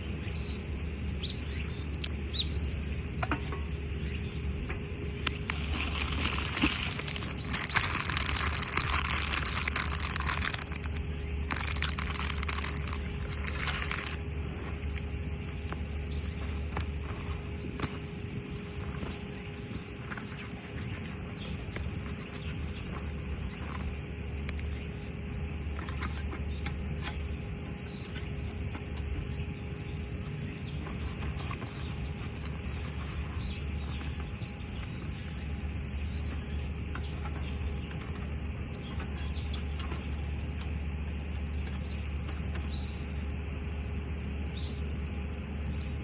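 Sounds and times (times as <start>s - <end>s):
crickets trilling: 0.0s - 46.0s
rustling hiss: 4.1s - 24.2s.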